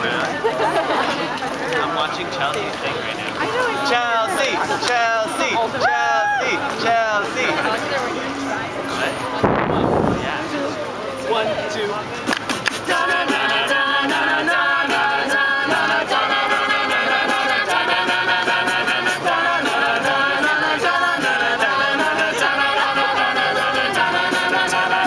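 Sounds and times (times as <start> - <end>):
vocal group singing in harmony: 3.6 - 8.0, 12.7 - 25.0.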